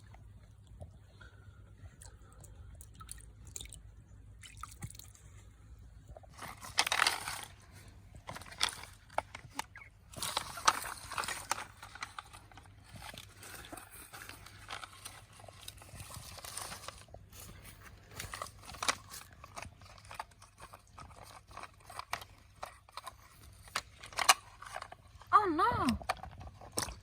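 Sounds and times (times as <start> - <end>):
rustling and scraping: 5.2 - 27.0
plastic toys clicking and knocking: 6.3 - 17.1, 18.1 - 27.0.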